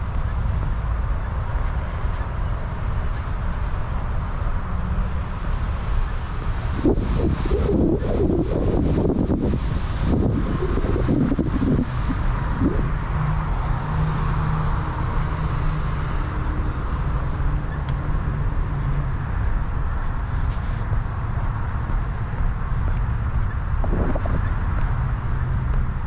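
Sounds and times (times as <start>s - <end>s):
road traffic rumble: 0.0s - 26.0s
vehicle passing: 9.5s - 26.0s.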